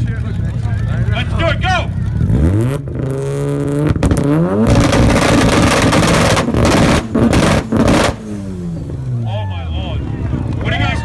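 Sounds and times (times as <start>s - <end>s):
rotary engine revving hard: 1.0s - 9.2s.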